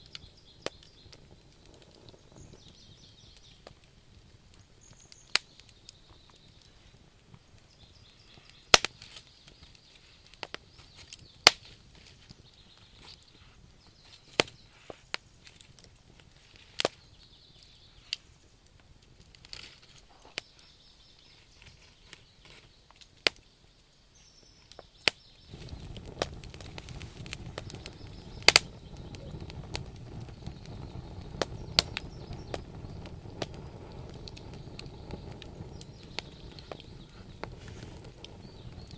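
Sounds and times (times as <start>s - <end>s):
logs popping: 0.0s - 23.4s, 24.7s - 38.9s
wood fire crackling: 0.0s - 38.9s
low rushing noise: 25.5s - 38.9s.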